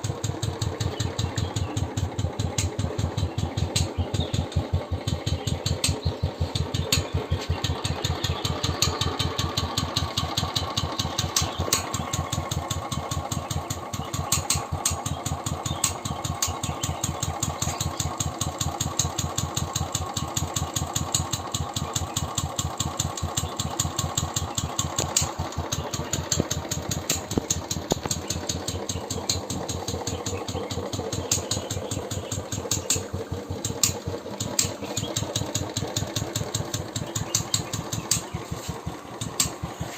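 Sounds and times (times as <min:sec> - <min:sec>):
engine ticking: 0:00.0 - 0:39.9
motorcycle engine idling: 0:00.0 - 0:39.9.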